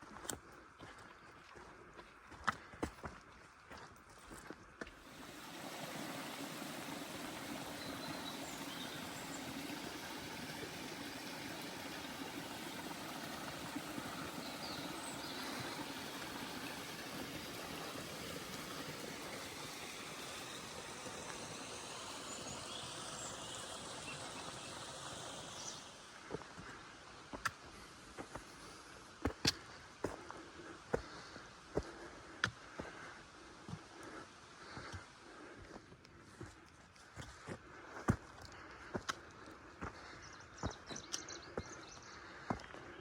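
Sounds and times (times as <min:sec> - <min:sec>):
mountain stream rushing: 0:05.0 - 0:26.9.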